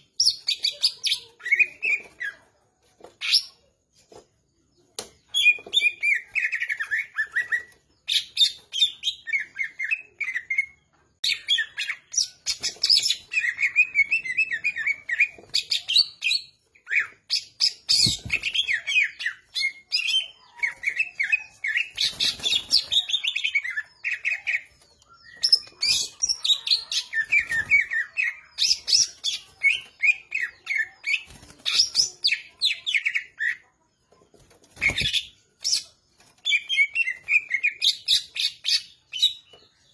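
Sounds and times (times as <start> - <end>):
songbird singing: 4.6 - 33.7.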